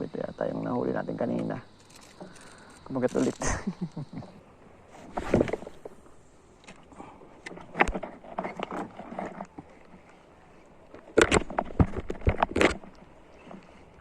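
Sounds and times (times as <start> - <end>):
knocks and clicks on boat: 10.9 - 13.8.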